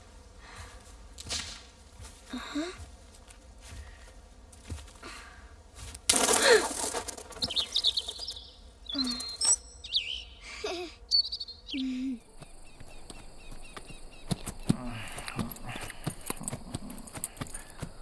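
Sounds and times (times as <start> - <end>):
small bird chirping: 7.3 - 18.0.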